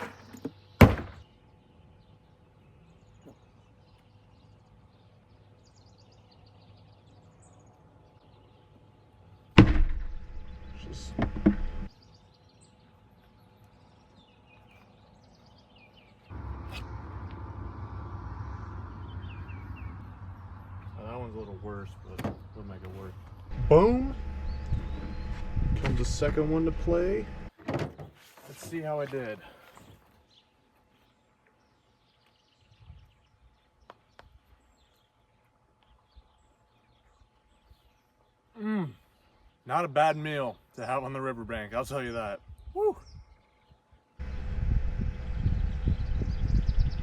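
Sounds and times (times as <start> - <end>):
faint bird chirps: 42.4 - 44.0.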